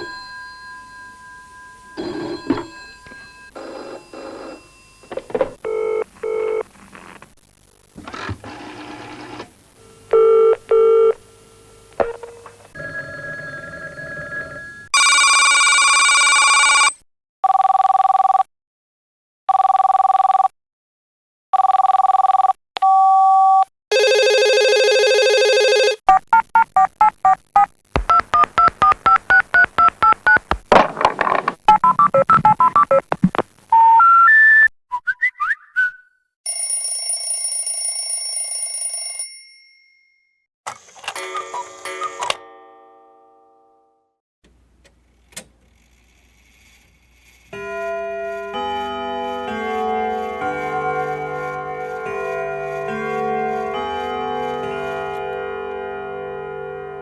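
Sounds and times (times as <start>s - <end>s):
bright bell-like ring: 0.0s - 5.1s, 36.5s - 40.4s
telephone ring tones: 0.0s - 6.6s, 10.1s - 11.2s, 12.0s - 18.5s, 19.5s - 20.5s, 21.6s - 26.1s, 36.5s - 39.4s.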